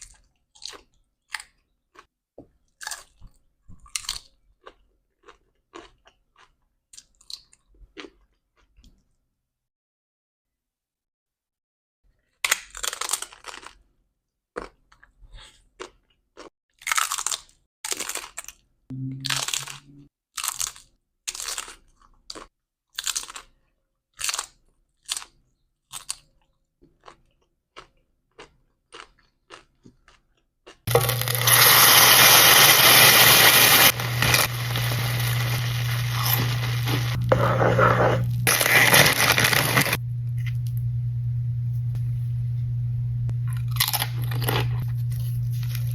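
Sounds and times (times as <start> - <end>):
crunching of chips being chewed: 0.0 - 9.2, 12.3 - 13.9, 14.6 - 18.7, 19.3 - 37.4, 38.2 - 40.7, 43.5 - 45.9
loud steady hiss with hum: 30.9 - 40.2.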